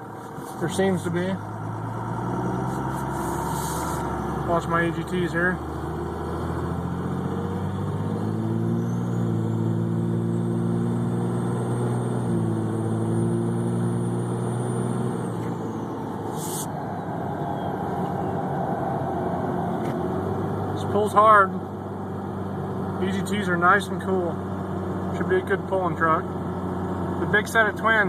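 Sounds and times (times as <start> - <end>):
diesel engine at full throttle: 0.0 - 28.0.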